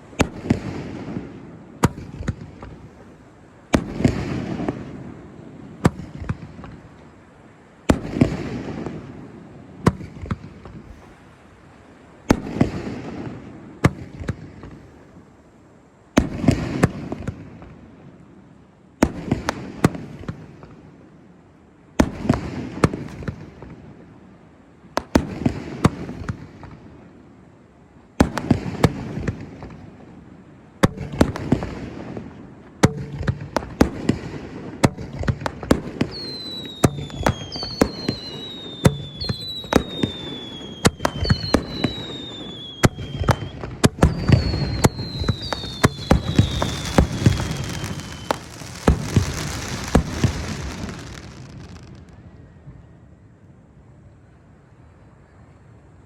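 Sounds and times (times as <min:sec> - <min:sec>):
fireworks bursting with bangs: 0:00.0 - 0:06.9, 0:07.8 - 0:11.4, 0:12.3 - 0:15.1, 0:16.2 - 0:17.8, 0:19.0 - 0:20.7, 0:22.0 - 0:24.1, 0:24.9 - 0:27.0, 0:28.2 - 0:52.3
fireworks crackling: 0:30.8 - 0:52.3
falling firework whistles: 0:34.9 - 0:52.9.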